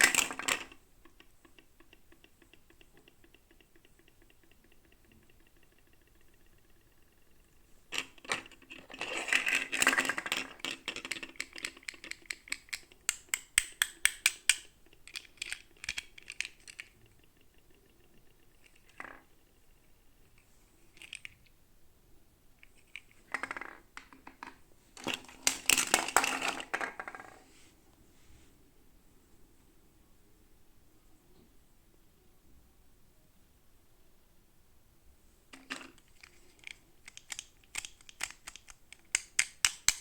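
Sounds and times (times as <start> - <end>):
plastic toy parts clicking: 0.0 - 19.8, 20.9 - 21.5, 22.6 - 27.1, 35.5 - 40.0.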